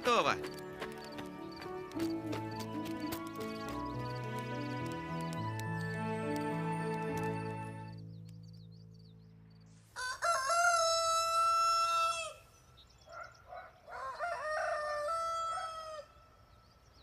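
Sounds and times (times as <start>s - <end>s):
rooster crowing: 10.0s - 12.4s, 13.8s - 16.2s.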